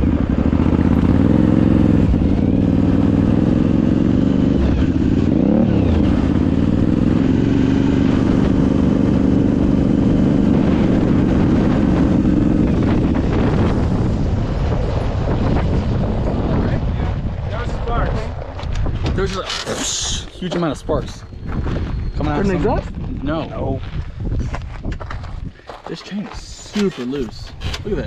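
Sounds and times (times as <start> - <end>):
v-twin engine running: 0.0 - 17.4.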